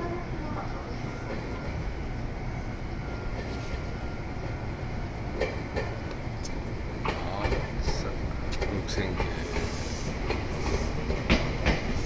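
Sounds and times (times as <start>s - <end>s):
electric train rumbling: 0.0s - 12.0s
train wheels clicking: 5.3s - 12.0s.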